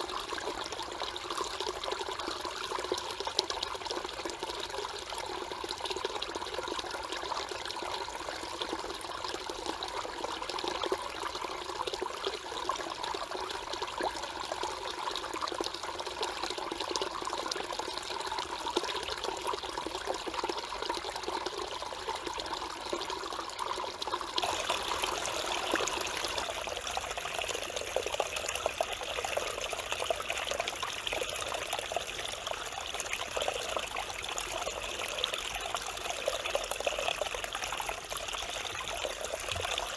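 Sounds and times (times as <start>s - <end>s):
stream babbling over rocks: 14.5s - 39.9s.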